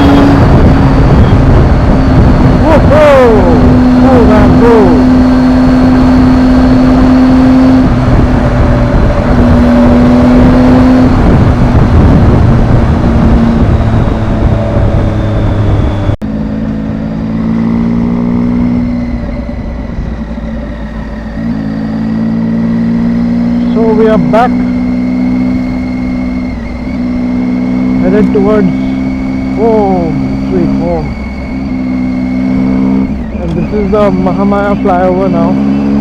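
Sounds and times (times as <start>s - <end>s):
motorcycle engine running: 0.0s - 36.0s
road and wind noise: 0.0s - 36.0s.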